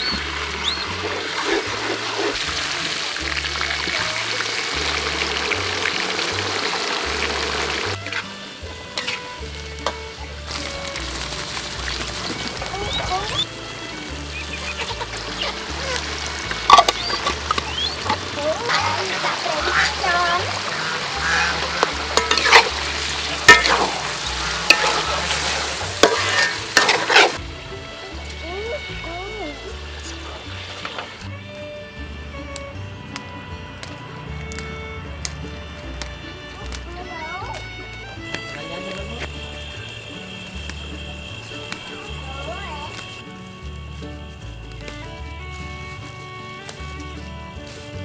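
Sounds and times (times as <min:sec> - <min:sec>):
background music with bass line: 0:00.0 - 0:48.0
garlic and oil sizzling: 0:00.0 - 0:48.0
metal spatula scraping a wok: 0:00.3 - 0:03.0, 0:07.0 - 0:12.6, 0:14.9 - 0:27.4
metal spatula clicking on wok: 0:22.1 - 0:22.8.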